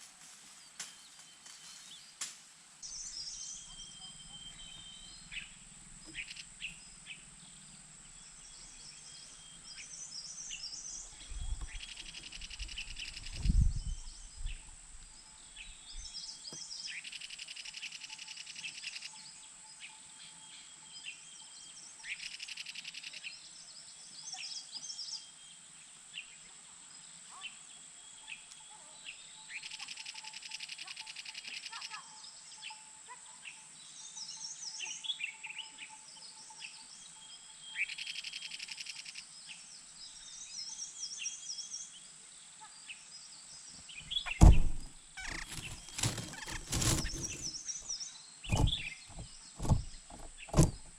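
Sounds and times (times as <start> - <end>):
small birds chirping: 2.8 - 26.5, 33.4 - 50.9
low thumps: 44.1 - 47.5, 48.5 - 50.9.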